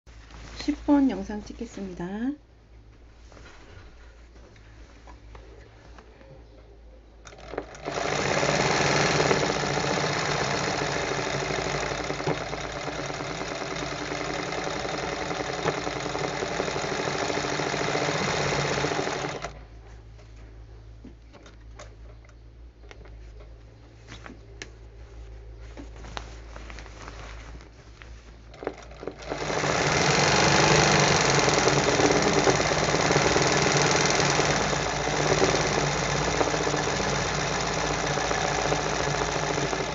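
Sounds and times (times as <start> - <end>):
sewing machine stitching: 7.3 - 19.6, 28.5 - 39.9.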